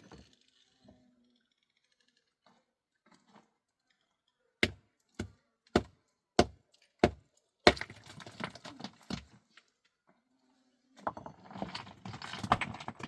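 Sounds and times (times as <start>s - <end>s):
small knocks and clatter: 6.7s - 10.2s, 11.0s - 13.0s.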